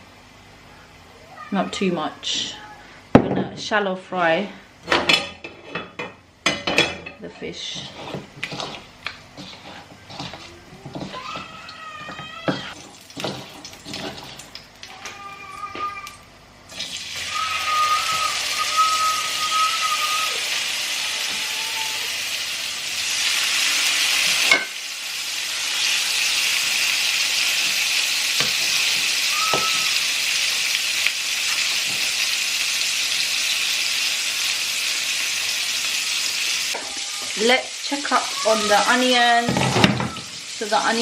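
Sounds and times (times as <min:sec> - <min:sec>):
fish sizzling in hot oil: 0:08.2 - 0:14.9, 0:16.7 - 0:41.0.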